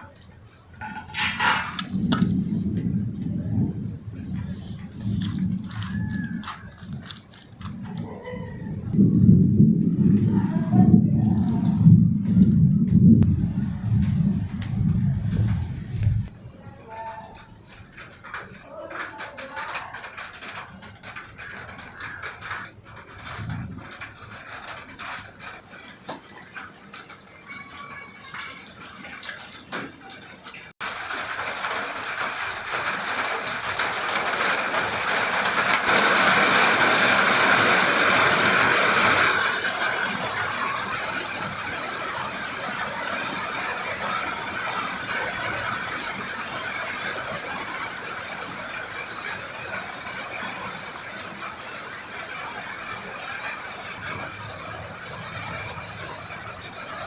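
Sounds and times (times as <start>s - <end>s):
chicken deep-frying in hot oil: 0.0s - 11.9s, 12.8s - 57.0s
scattered crackling and ticks: 0.0s - 57.0s.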